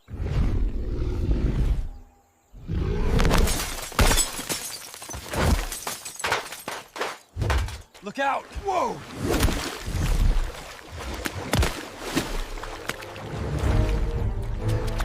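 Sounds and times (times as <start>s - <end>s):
crash of breaking and shattering: 3.3s - 7.2s.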